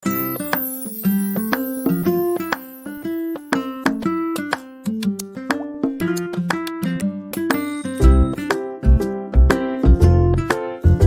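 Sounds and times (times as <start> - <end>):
bright keyboard melody: 0.0 - 4.8, 7.3 - 11.0.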